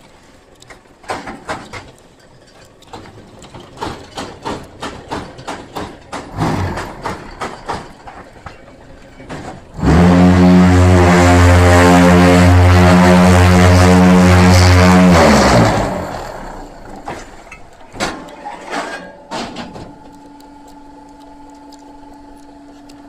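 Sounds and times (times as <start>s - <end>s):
machine mechanism clacking: 0.5s - 9.7s
loud steady machine hum: 4.4s - 23.0s.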